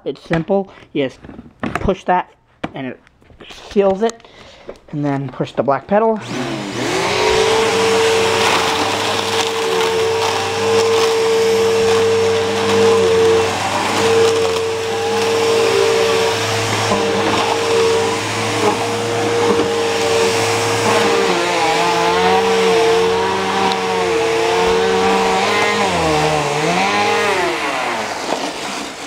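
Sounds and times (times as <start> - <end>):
vacuum cleaner whining: 6.2 - 29.0.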